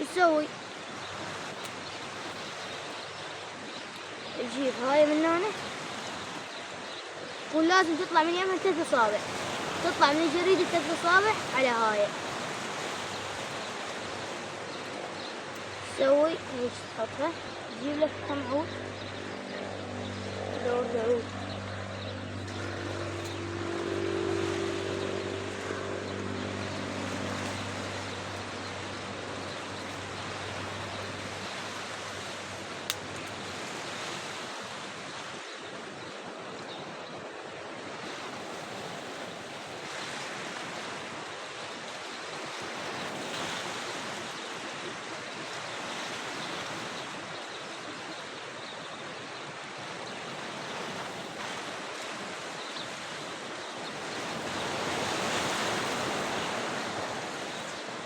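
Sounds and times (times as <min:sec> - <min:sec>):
wind on microphone: 0:04.4 - 0:44.9
engine drone: 0:13.2 - 0:34.0.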